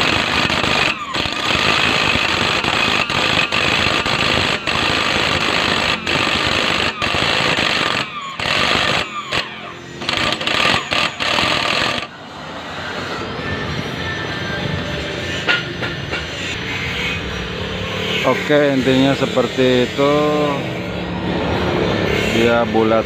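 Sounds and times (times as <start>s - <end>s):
jigsaw cutting plywood: 0.0s - 12.1s.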